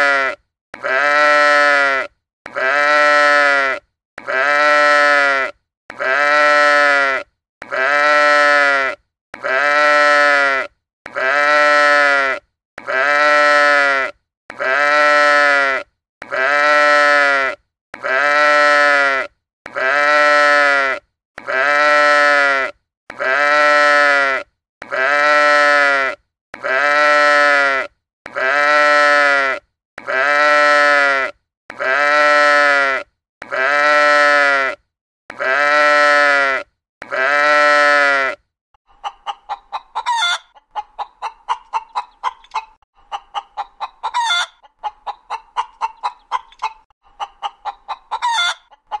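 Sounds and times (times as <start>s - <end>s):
sheep bleating: 0.0s - 38.4s
chickens clucking: 38.9s - 49.0s.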